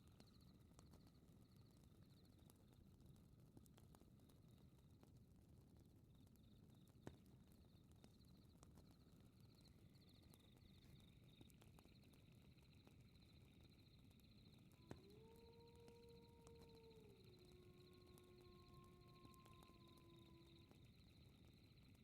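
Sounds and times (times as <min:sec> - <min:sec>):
fireplace crackling: 0:01.8 - 0:22.0
night insects chirping: 0:09.6 - 0:22.0.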